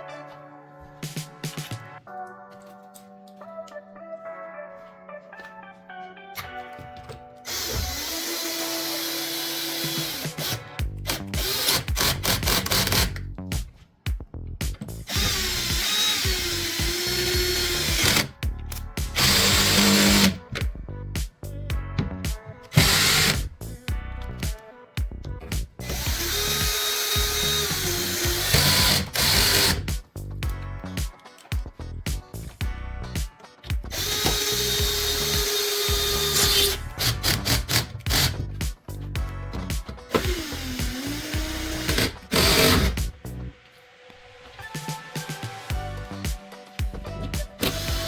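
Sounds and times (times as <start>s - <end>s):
background music with steady beat: 0.0s - 48.0s
cordless drill whirring: 7.5s - 13.1s, 15.1s - 18.3s, 19.2s - 20.4s, 22.8s - 23.4s, 25.9s - 29.8s, 34.0s - 38.4s, 40.1s - 43.0s, 47.6s - 48.0s.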